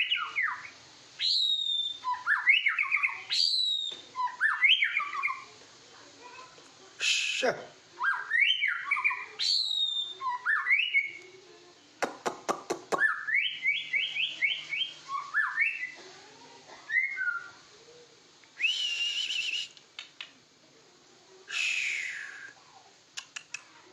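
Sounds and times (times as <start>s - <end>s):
bird singing whistled notes: 0.0s - 5.5s, 8.0s - 11.2s, 12.9s - 16.0s, 16.9s - 17.6s, 18.6s - 19.8s, 21.5s - 22.6s
bird sharp clicks: 12.0s - 13.1s, 19.7s - 20.4s, 23.1s - 23.7s.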